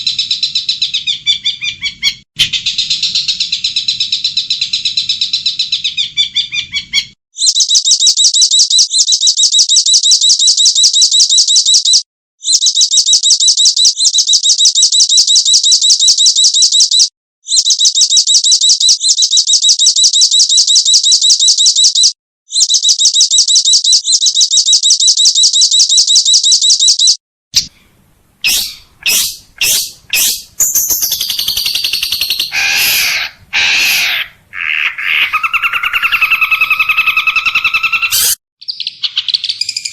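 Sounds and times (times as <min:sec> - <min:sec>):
songbird varied song: 0:00.0 - 0:39.9
songbird high trill: 0:28.4 - 0:39.9.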